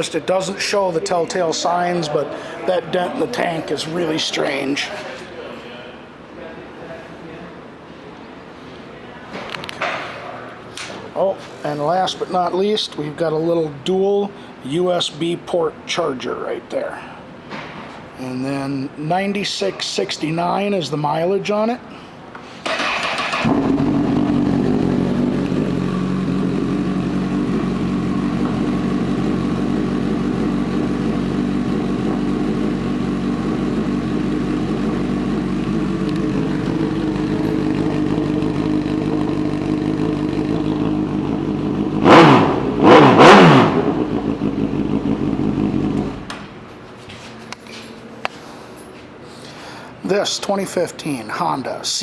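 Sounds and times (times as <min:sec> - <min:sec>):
motorcycle engine starting: 0:22.6 - 0:46.4
motorcycle engine revving: 0:22.7 - 0:46.3
motorcycle engine idling: 0:22.9 - 0:46.3.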